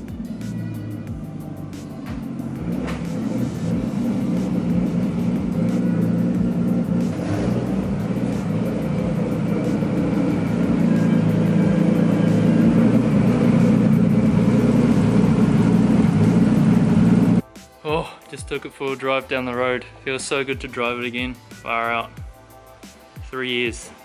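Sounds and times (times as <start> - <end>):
car engine running at low revs: 0.0 - 17.4.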